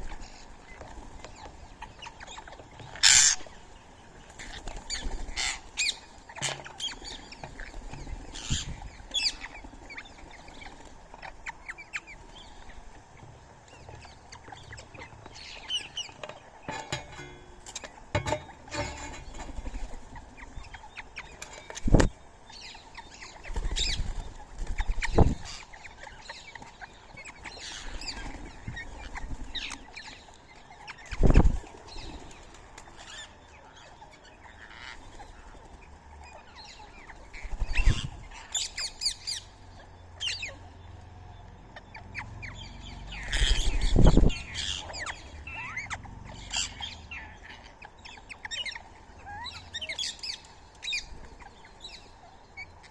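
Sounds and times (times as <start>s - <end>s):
birds chirping and squawking: 0.0s - 52.9s
wings flapping: 4.3s - 5.8s, 21.3s - 22.2s, 23.4s - 25.6s.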